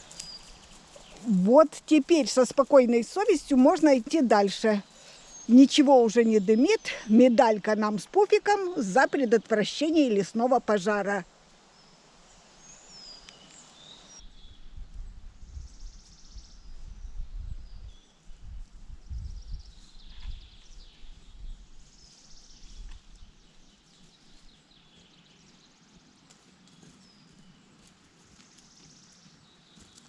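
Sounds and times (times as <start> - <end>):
birds calling and singing: 0.0 - 10.9.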